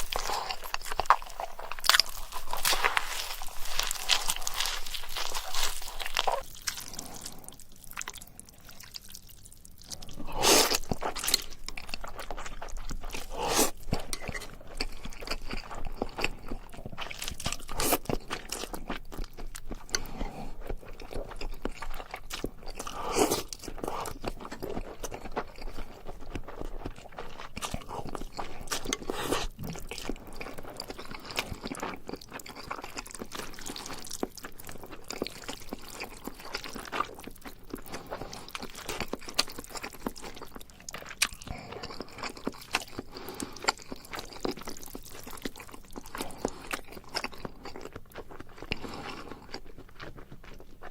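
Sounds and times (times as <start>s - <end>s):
crunchy food being chewed: 0.0s - 50.9s.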